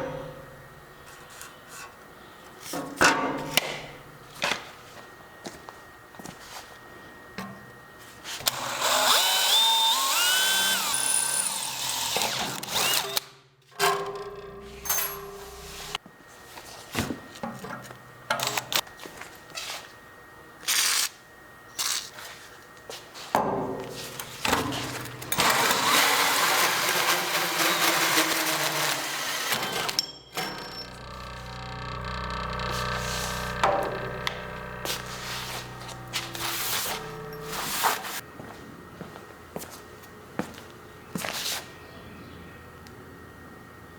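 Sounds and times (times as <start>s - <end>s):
power tool whining: 8.3s - 13.3s, 14.1s - 16.0s, 24.2s - 38.2s
knocks and clatter of work: 13.7s - 16.0s, 26.6s - 38.2s.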